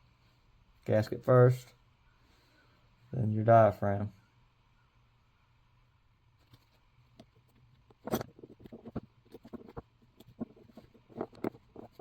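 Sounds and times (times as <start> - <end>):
small parts and tool clicking: 6.4 - 12.0.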